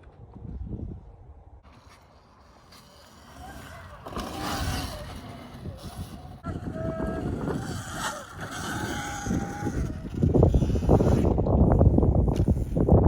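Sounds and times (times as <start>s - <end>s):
rumbling wind: 0.0s - 13.0s
tyre noise: 1.6s - 13.0s
electric motor whine: 2.6s - 11.5s.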